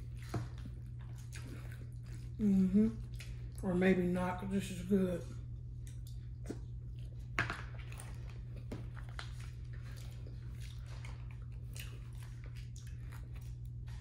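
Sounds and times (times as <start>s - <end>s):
chewing and wet mouth sounds: 0.0s - 14.0s
steady low hum: 0.0s - 14.0s.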